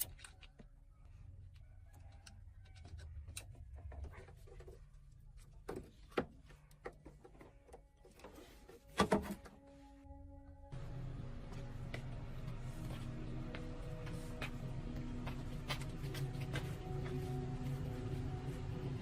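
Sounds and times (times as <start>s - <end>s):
low rumble: 10.1s - 19.0s.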